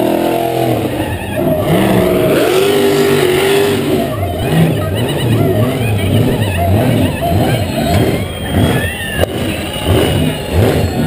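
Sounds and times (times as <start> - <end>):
drag car engine revving: 0.0 - 11.0.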